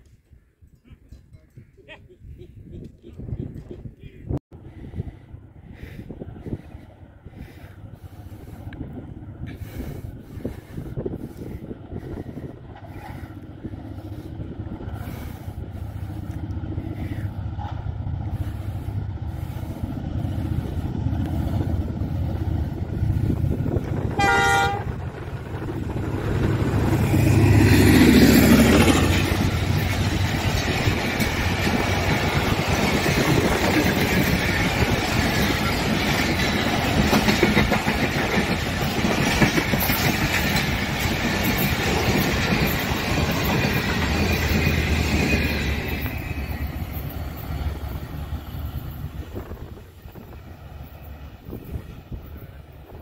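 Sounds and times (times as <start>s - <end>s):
diesel locomotive passing: 4.6s - 53.0s
train horn blast: 24.1s - 25.0s.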